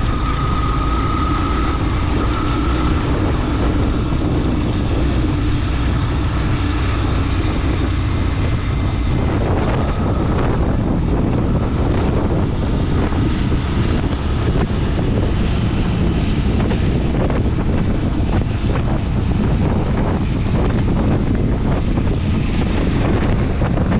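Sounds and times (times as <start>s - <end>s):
vehicle rumble: 0.0s - 23.9s
wind buffeting microphone: 0.0s - 23.9s.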